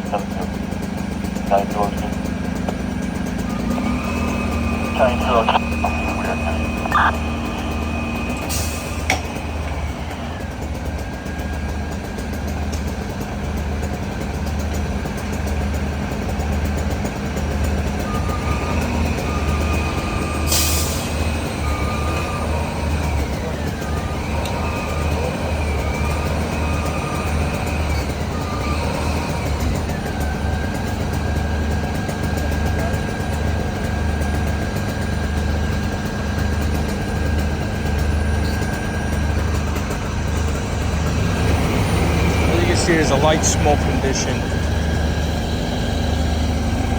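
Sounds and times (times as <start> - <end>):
faint engine whine: 0.0 - 12.3, 37.5 - 46.9
diesel engine idling: 0.0 - 46.9.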